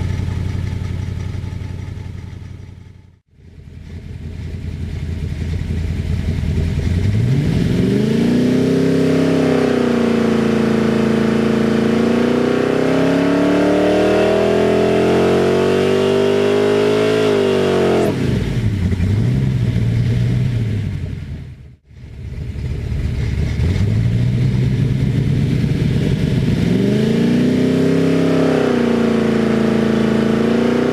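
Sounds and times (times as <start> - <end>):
engine revving under load: 6.9 - 20.6, 23.4 - 30.9.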